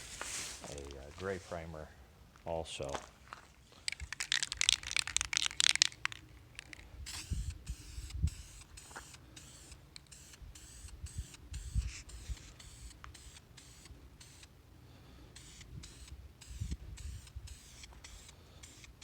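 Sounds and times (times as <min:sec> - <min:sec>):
aerosol spray can hissing: 0:04.2 - 0:14.5, 0:15.3 - 0:19.0.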